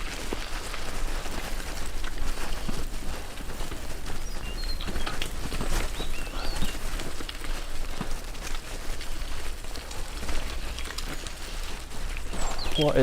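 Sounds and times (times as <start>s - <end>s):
bicycle rattling over rough track: 0.0s - 13.0s
wind rumbling on microphone: 0.0s - 13.0s
bird chirping: 4.0s - 7.2s, 8.8s - 13.0s.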